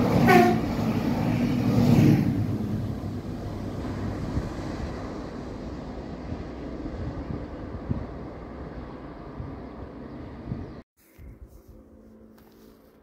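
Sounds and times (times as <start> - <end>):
trains passing each other: 0.0 - 10.8.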